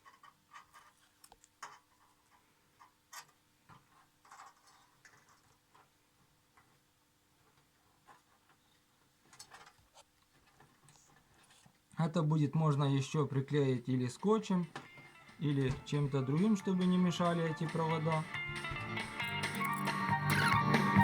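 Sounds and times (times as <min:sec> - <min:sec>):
small clicks and rustles of hands: 0:00.0 - 0:05.9, 0:09.2 - 0:11.8.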